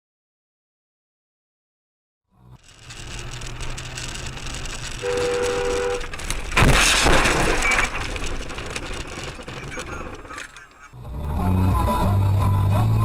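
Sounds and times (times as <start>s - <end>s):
road noise: 2.3s - 13.0s
crash: 2.6s - 11.0s
vehicle horn blaring: 5.0s - 6.2s.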